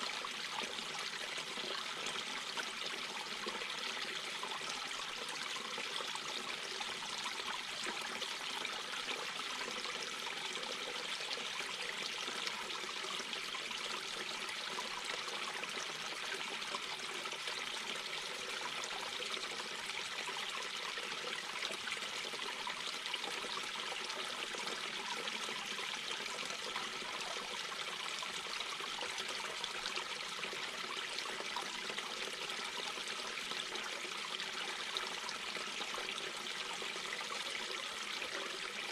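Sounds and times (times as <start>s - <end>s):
brook babbling over rocks: 0.0s - 38.9s.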